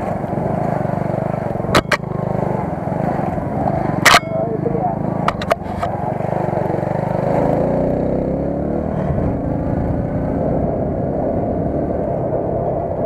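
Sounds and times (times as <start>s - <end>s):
motorcycle engine revving: 0.0s - 13.0s
wind and road noise: 0.0s - 13.0s.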